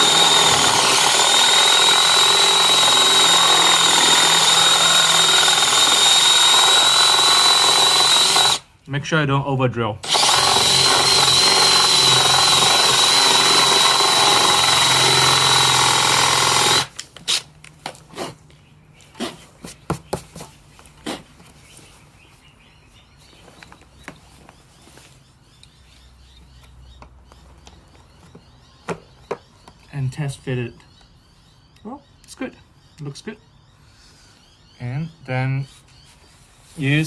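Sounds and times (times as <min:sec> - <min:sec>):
power drill whining: 0:00.0 - 0:08.7, 0:10.0 - 0:17.4.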